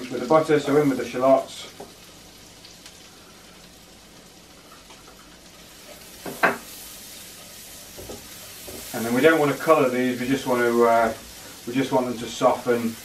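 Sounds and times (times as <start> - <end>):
shallots sizzling in butter: 0.0 - 13.0
spatula stirring in a pan: 5.6 - 11.7.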